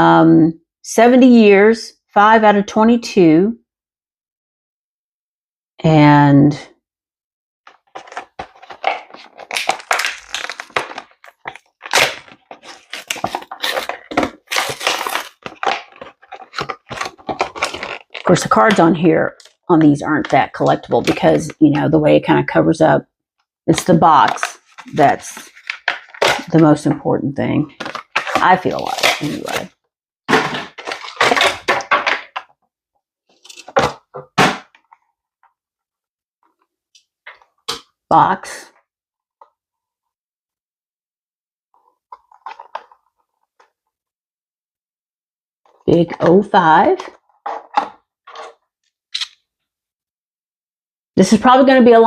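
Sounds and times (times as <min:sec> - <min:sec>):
packaging crinkling and tearing: 0:07.7 - 0:18.5, 0:24.2 - 0:26.6, 0:27.8 - 0:29.7, 0:30.3 - 0:32.5, 0:33.3 - 0:34.9, 0:42.1 - 0:43.1.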